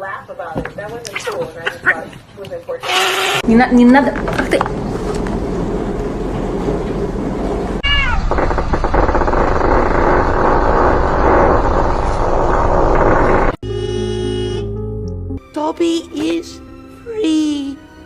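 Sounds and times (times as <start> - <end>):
cat meowing: 7.8 - 8.3.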